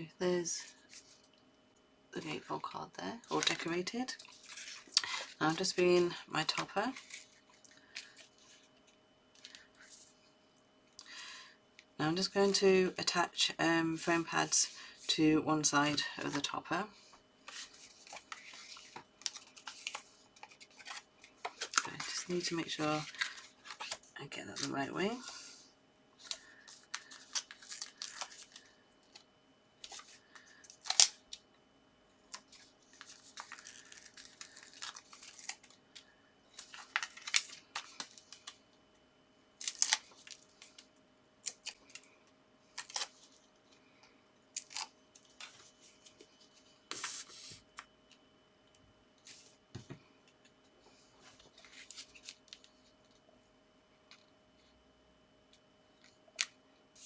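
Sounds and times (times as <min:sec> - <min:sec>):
paper rustling: 0:03.2 - 0:10.1, 0:17.4 - 0:25.4, 0:26.2 - 0:29.2, 0:32.3 - 0:38.6, 0:44.6 - 0:47.6, 0:51.2 - 0:53.0.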